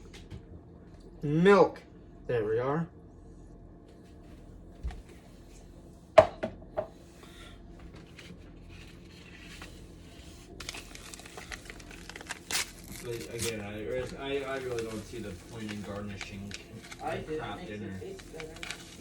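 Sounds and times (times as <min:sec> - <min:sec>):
packaging crinkling: 0:08.1 - 0:19.0.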